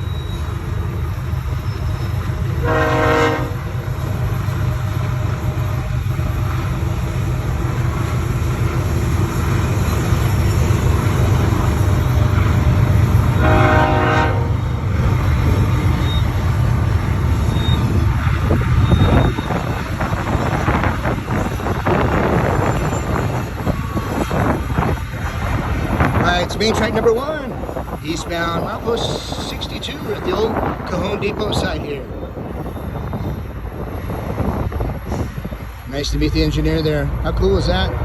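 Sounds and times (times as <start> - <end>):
freight train rumbling past: 0.0 - 38.0
train horn blasts: 2.6 - 3.8, 13.3 - 14.8.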